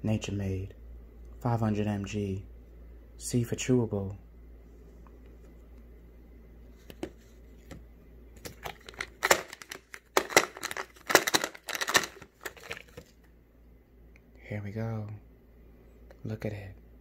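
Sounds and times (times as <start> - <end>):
packaging tearing and crinkling: 8.4 - 13.1.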